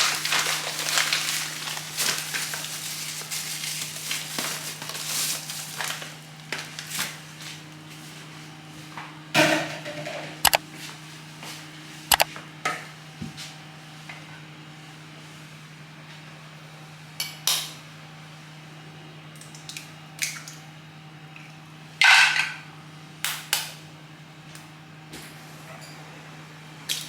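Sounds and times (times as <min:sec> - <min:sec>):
dishes and utensils clinking: 0:22.0 - 0:22.6.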